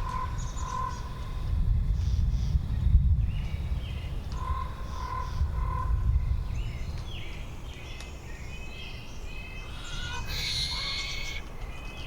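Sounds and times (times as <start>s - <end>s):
wind through forest: 0.0s - 12.0s
birds chirping: 6.1s - 12.0s.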